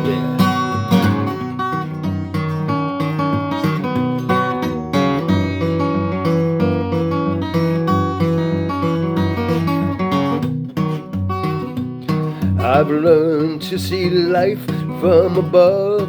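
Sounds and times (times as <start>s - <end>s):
acoustic guitar plucking: 0.0s - 16.0s.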